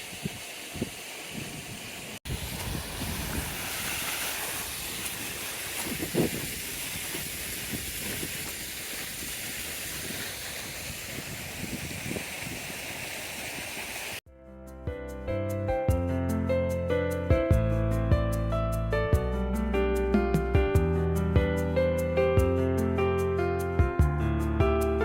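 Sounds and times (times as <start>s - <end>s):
river water rushing: 2.3s - 11.0s
gentle piano-like music: 14.3s - 25.0s.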